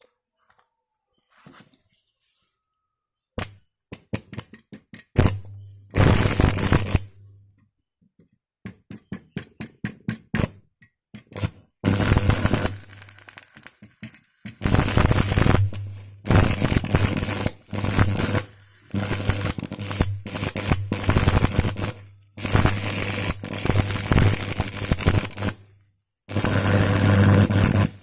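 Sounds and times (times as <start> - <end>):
welding arc crackling: 5.2 - 7.4, 11.4 - 28.0.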